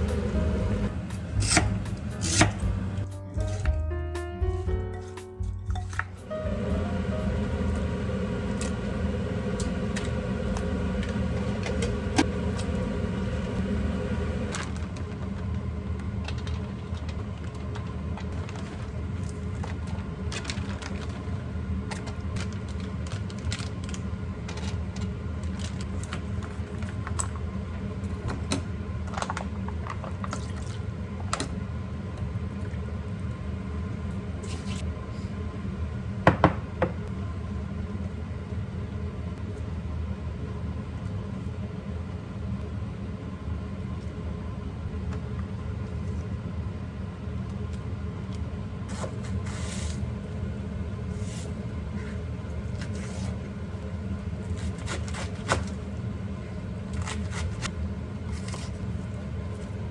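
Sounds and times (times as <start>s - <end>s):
steady low hum: 0.0s - 3.6s, 5.6s - 15.1s, 48.7s - 59.9s.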